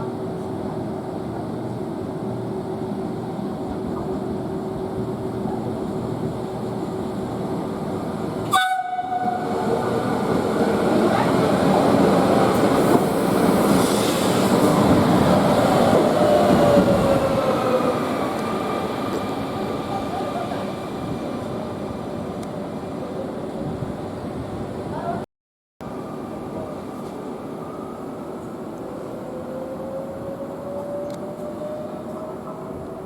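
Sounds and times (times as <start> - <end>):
train running past: 0.0 - 25.2, 25.8 - 33.0
train horn sliding down in pitch: 8.5 - 9.6.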